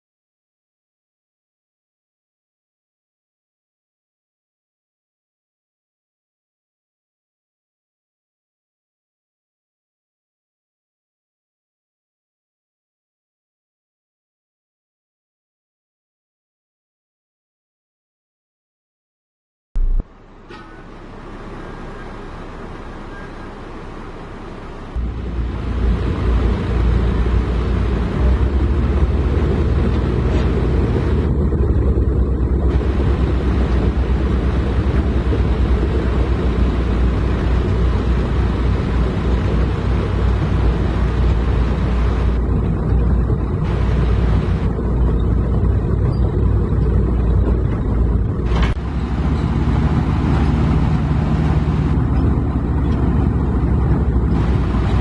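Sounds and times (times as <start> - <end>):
heavy diesel engine running: 19.8 - 55.0.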